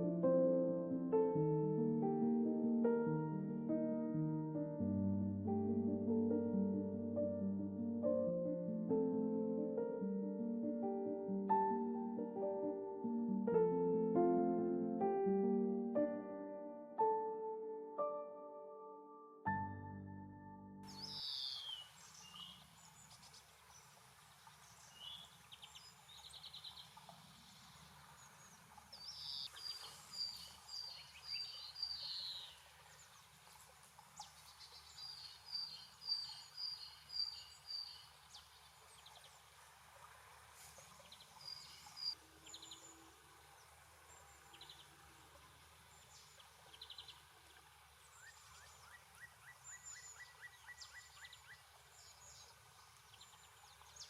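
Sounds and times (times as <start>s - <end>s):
small songbirds singing: 20.8s - 39.6s, 40.7s - 45.0s, 45.8s - 54.0s.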